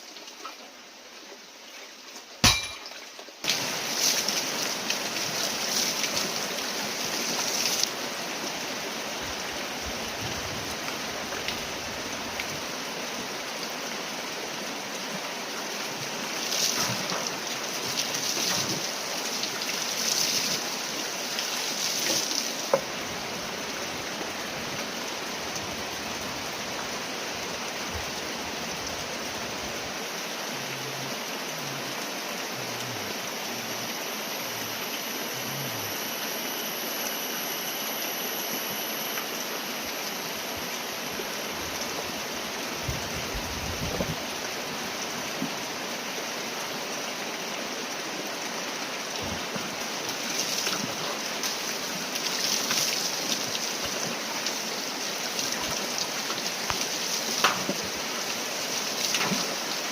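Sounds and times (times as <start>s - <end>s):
running water rushing: 0.0s - 59.9s
crackles and light taps: 55.6s - 57.9s.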